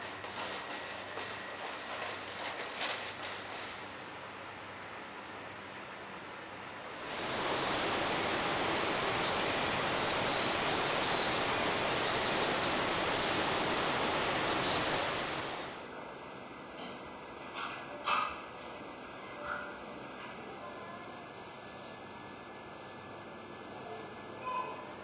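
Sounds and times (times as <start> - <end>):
rush of falling water: 6.9 - 15.8
faint high chirps: 7.2 - 15.7.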